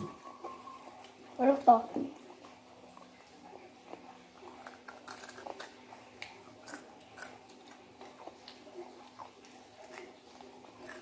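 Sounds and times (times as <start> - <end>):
faint steady hum: 0.0 - 11.0
crunchy chewing: 2.2 - 11.0.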